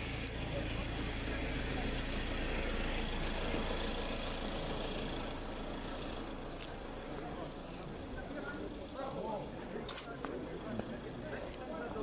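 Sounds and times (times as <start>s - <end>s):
vehicle engine idling: 0.0s - 9.6s
street noise: 0.0s - 12.0s.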